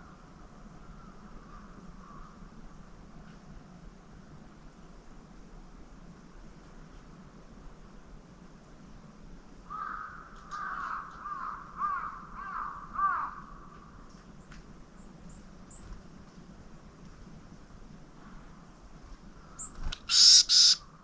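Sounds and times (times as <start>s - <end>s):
crow cawing: 9.7s - 13.7s, 19.5s - 20.8s.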